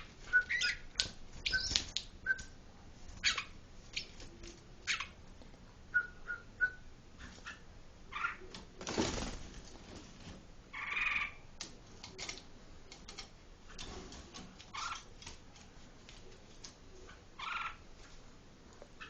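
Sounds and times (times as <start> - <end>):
bird calls: 0.0 - 2.5
faint clicks and taps: 11.6 - 16.8.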